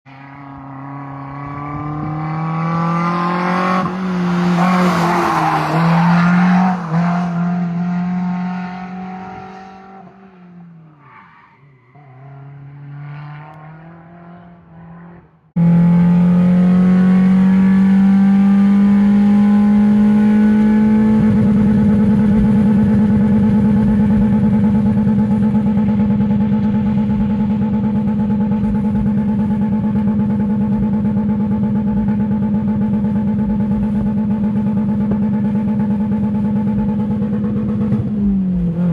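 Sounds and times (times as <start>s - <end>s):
car engine revving: 0.1s - 11.0s, 12.0s - 38.9s
loud steady exhaust note: 15.6s - 38.9s.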